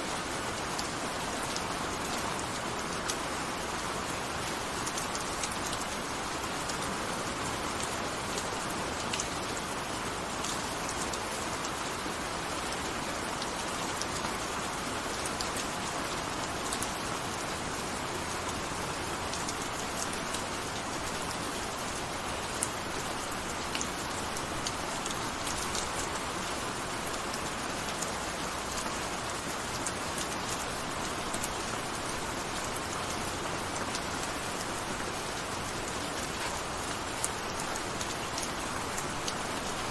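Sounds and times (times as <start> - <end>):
gentle rain falling: 0.0 - 39.9
raindrop ticks: 8.4 - 9.3, 22.5 - 28.1, 35.4 - 39.8.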